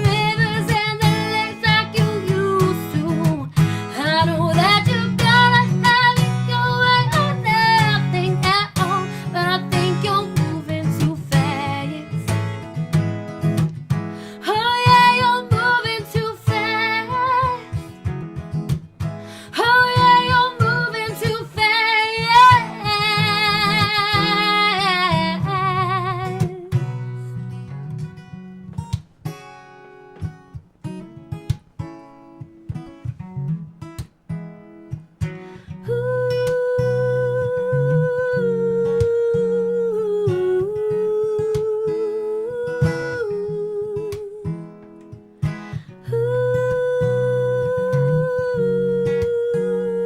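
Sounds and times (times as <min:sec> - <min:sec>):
woman singing: 0:00.0 - 0:12.5, 0:14.2 - 0:18.0, 0:19.3 - 0:27.1, 0:35.6 - 0:44.9, 0:45.6 - 0:50.0
acoustic guitar strumming: 0:00.0 - 0:50.0.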